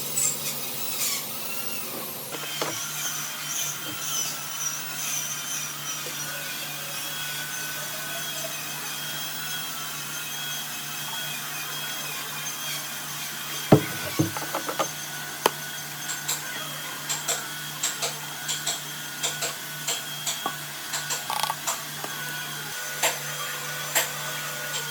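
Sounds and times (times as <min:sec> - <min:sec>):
sharp knock: 0:13.7 - 0:14.8.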